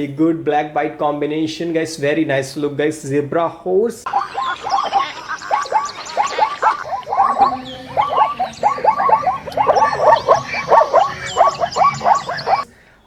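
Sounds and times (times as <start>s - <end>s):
animal yelping calls: 4.1s - 12.7s
high chirps: 4.1s - 12.7s.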